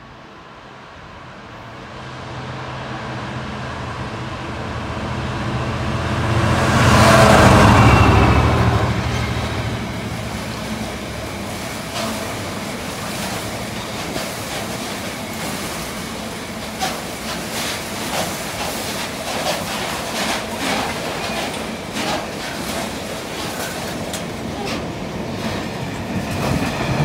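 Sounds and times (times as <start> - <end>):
diesel locomotive engine rumble: 0.0 - 27.0.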